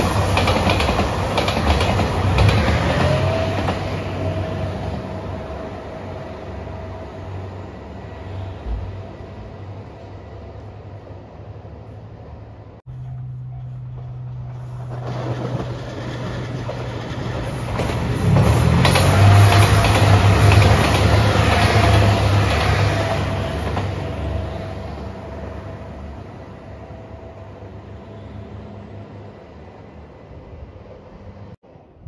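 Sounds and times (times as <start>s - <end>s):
train wheel noise: 0.0s - 11.5s, 12.2s - 26.4s
diesel train engine rumble: 0.0s - 31.6s.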